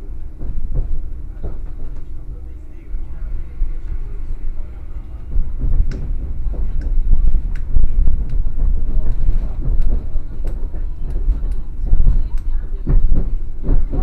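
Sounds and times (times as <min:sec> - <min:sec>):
train rumble inside carriage: 0:00.0 - 0:14.0
clacks and knocks of running gear: 0:05.2 - 0:14.0.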